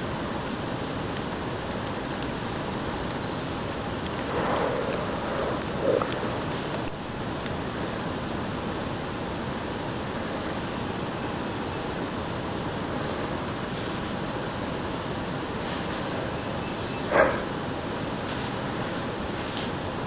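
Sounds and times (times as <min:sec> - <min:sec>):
songbird chirps: 0:00.0 - 0:06.9, 0:13.5 - 0:17.5
steady rushing background: 0:04.0 - 0:07.1.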